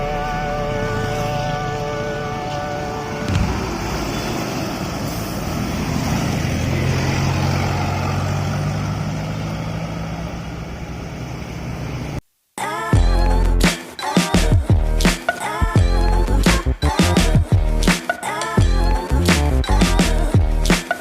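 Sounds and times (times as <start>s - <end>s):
heavy truck engine running: 0.0s - 12.2s
traffic noise: 0.0s - 12.2s.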